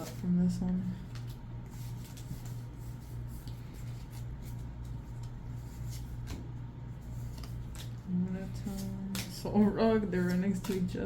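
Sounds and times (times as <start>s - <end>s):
steady low hum: 0.0s - 11.0s
cards rubbing: 1.1s - 9.4s.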